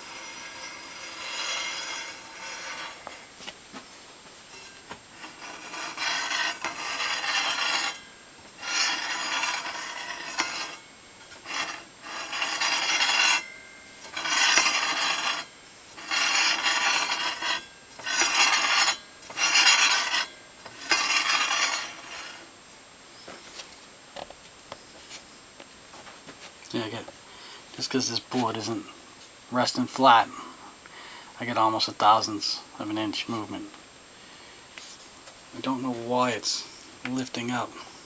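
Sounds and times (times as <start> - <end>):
wooden board scraping on saw table: 0.1 - 3.3.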